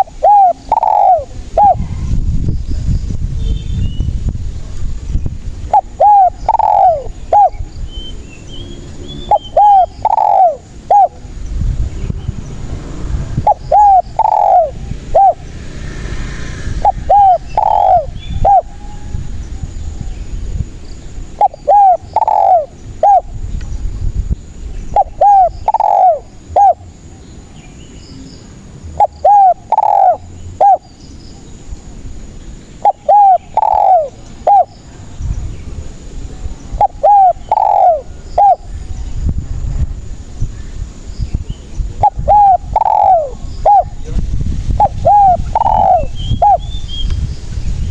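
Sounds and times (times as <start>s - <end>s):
dove cooing: 0.0s - 2.1s, 5.6s - 7.7s, 9.2s - 11.3s, 13.4s - 15.6s, 16.8s - 20.0s, 21.3s - 23.4s, 24.9s - 27.2s, 28.9s - 31.0s, 32.8s - 34.8s, 36.7s - 39.0s, 42.0s - 44.2s, 44.8s - 47.0s.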